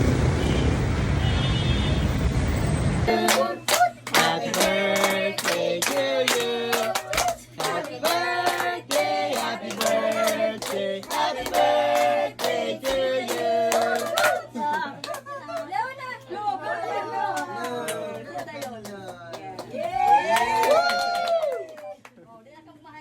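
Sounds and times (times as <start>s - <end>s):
people singing together: 3.1s - 15.0s
hands clapping to beat: 3.2s - 15.7s.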